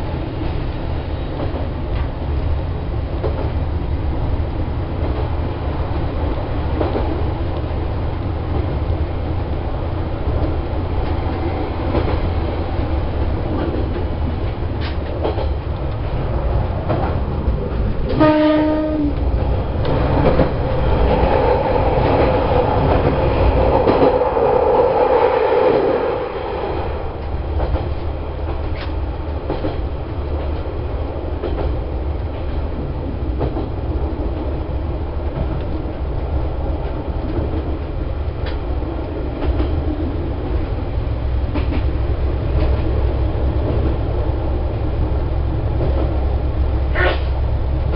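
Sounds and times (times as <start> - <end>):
train running along track: 0.0 - 47.9
wheels clicking over rail joints: 10.2 - 24.3, 27.1 - 34.6
train horn blast: 18.1 - 19.2, 46.9 - 47.3.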